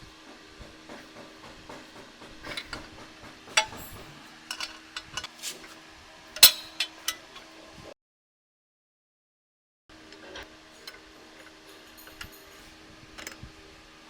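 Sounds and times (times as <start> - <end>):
metal tools clinking: 6.4 - 7.2, 10.8 - 13.4.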